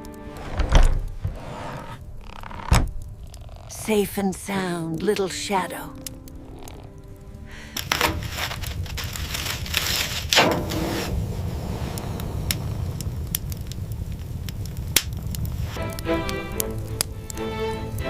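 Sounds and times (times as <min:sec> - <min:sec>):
soft violin music: 0:00.0 - 0:00.8, 0:05.0 - 0:08.9, 0:15.8 - 0:18.0
fire popping: 0:00.0 - 0:18.0
wood fire crackling: 0:00.0 - 0:18.0
low rumble: 0:06.0 - 0:16.0
rustling and crunching: 0:07.8 - 0:15.8.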